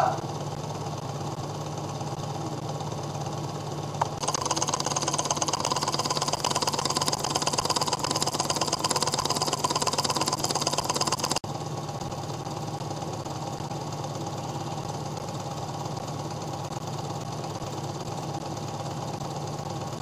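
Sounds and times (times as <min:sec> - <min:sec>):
small engine mechanical clatter: 0:00.0 - 0:20.0.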